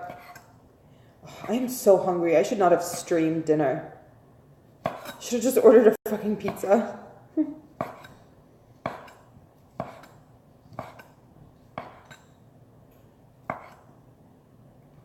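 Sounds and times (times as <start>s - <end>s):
knife chopping on cutting board: 0.0s - 0.5s, 4.8s - 5.2s, 7.8s - 8.2s, 8.8s - 12.2s, 13.4s - 13.9s.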